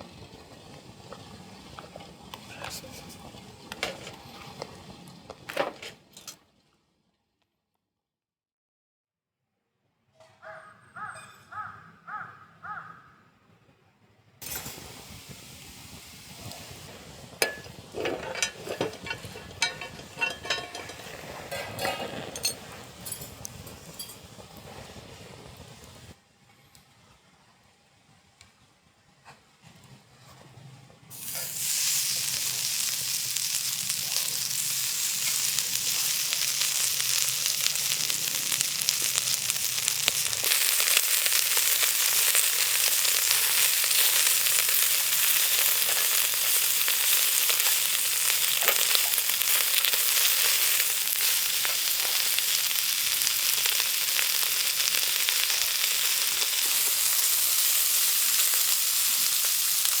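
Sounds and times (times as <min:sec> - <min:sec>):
food sizzling on hot metal: 0:00.0 - 0:06.1, 0:14.4 - 0:26.2, 0:31.1 - 1:00.0.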